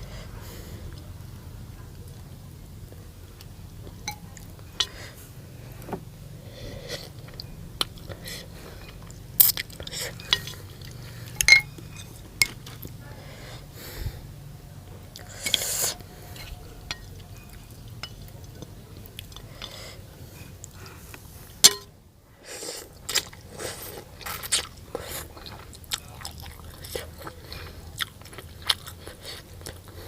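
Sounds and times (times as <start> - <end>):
utensils clinking against bowl: 9.9 - 12.8, 15.4 - 18.4, 21.6 - 21.9.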